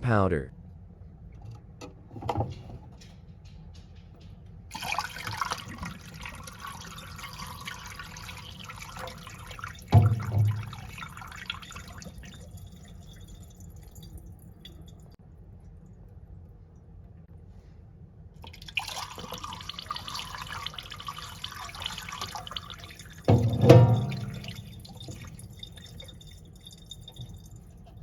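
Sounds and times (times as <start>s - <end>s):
toilet flush water rushing: 4.7s - 13.0s, 18.5s - 26.2s
water trickling and dripping: 4.7s - 16.9s, 18.4s - 28.0s
low thump: 10.0s - 10.8s, 23.3s - 24.7s.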